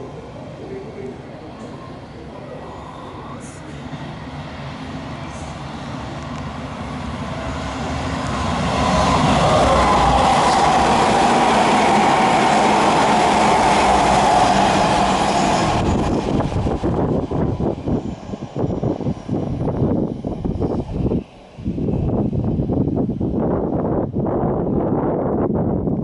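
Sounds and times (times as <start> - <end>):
train passing through station: 0.0 - 26.0.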